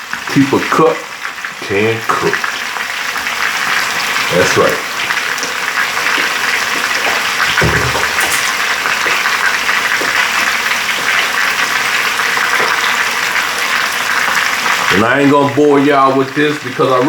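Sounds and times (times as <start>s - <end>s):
chicken sizzling in oil: 0.0s - 17.0s
soft low thud: 7.5s - 8.2s.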